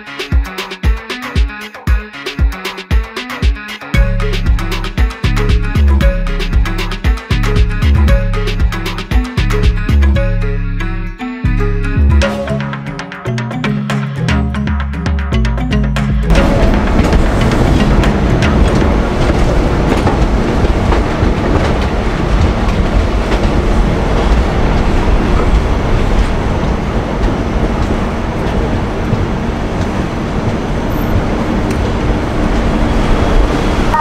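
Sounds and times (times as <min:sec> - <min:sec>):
train rumbling: 0:16.2 - 0:34.0.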